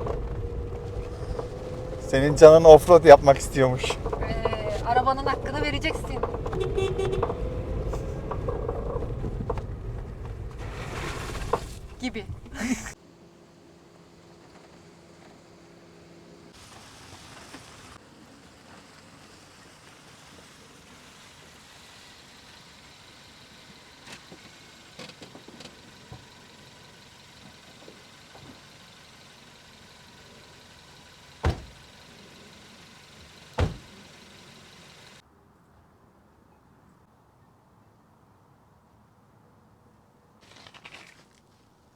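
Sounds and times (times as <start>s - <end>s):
small rattles and knocks: 0.0s - 12.0s
car driving on dirt track: 0.0s - 13.0s, 14.1s - 35.2s
loud thumps: 33.6s - 33.9s.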